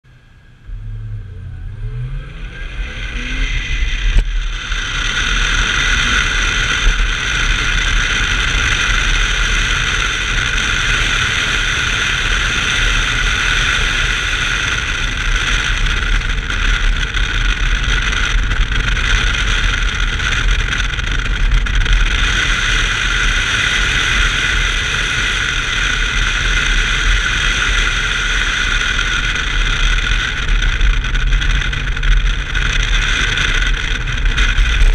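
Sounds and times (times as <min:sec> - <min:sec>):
car engine accelerating: 0:00.0 - 0:34.9.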